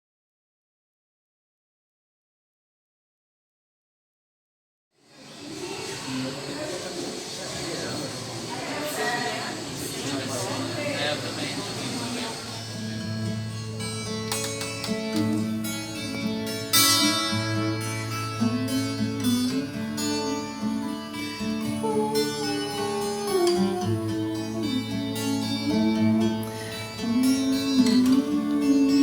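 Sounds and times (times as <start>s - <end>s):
acoustic guitar music: 12.3s - 29.0s.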